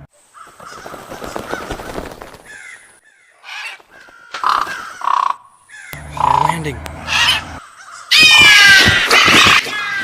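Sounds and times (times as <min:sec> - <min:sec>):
rough rustling: 0:00.2 - 0:05.1
crows cawing: 0:00.3 - 0:10.0.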